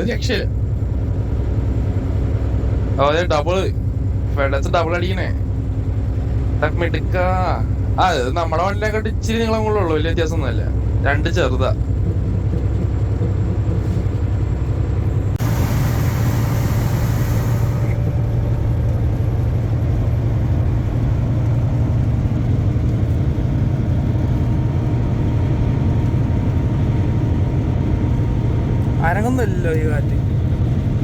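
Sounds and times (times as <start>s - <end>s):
truck engine and road drone: 0.0s - 31.0s
burst of hiss: 15.4s - 18.0s.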